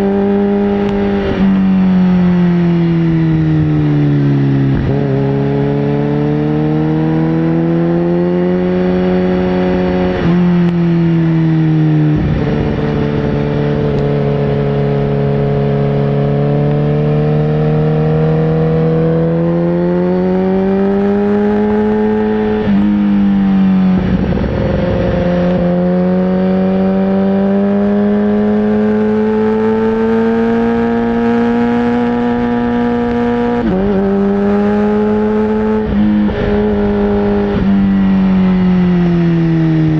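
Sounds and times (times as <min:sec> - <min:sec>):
sportbike engine revving: 0:00.0 - 0:39.9.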